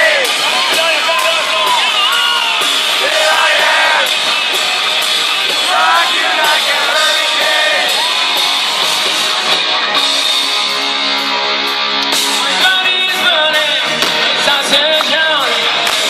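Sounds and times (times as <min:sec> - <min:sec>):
drum beat: 0:00.0 - 0:10.2
distorted guitars: 0:00.0 - 0:16.0
live rock band playing: 0:00.0 - 0:16.0.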